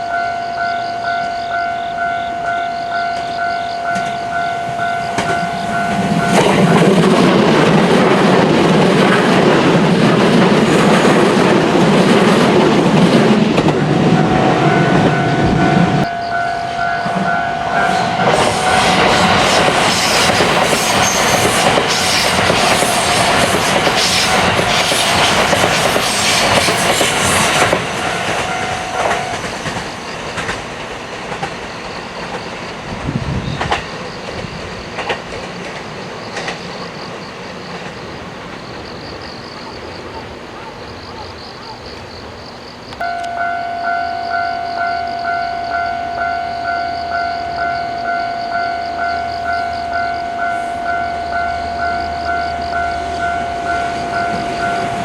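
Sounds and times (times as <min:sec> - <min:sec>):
train wheels clattering: 0:00.8 - 0:39.9
steady tone: 0:12.9 - 0:21.3, 0:43.0 - 0:55.0.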